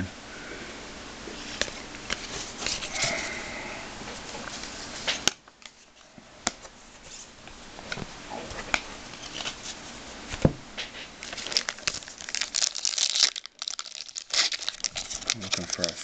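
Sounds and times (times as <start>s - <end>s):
cards shuffling and sliding: 1.4s - 3.2s, 4.3s - 12.0s.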